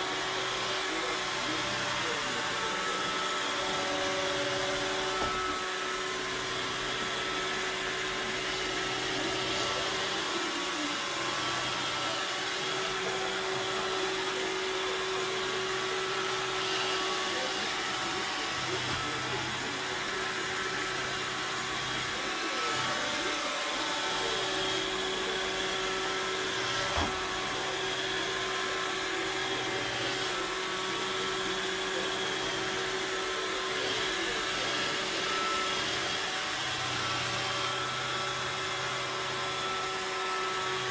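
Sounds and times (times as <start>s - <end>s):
robot vacuum motor whir: 0.0s - 40.9s.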